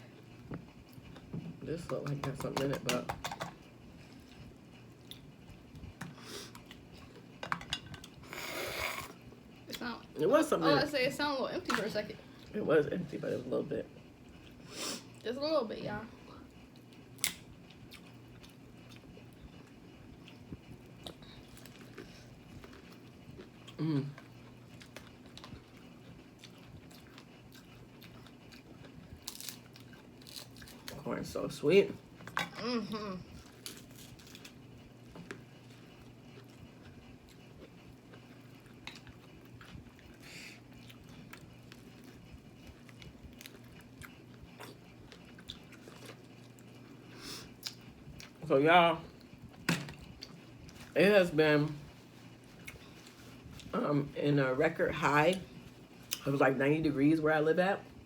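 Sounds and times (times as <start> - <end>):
quiet chewing and biting: 16.7 - 31.0, 33.4 - 48.4.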